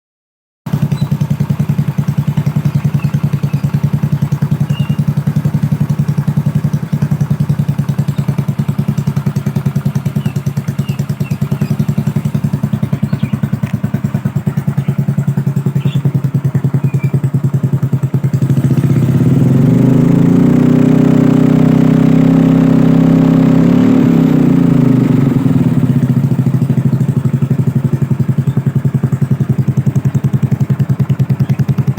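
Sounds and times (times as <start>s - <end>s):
scooter engine idling and revving: 0.7s - 31.9s.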